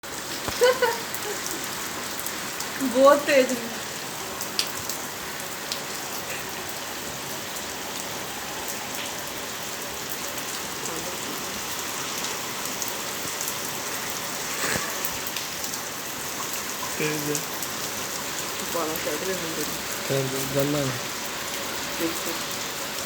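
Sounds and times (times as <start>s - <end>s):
heavy rain falling: 0.0s - 23.0s
raindrops ticking on a surface: 0.1s - 23.0s.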